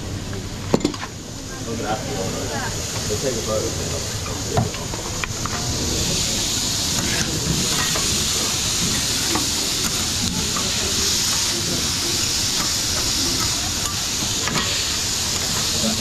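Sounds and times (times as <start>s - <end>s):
food frying sizzling: 5.2s - 16.0s.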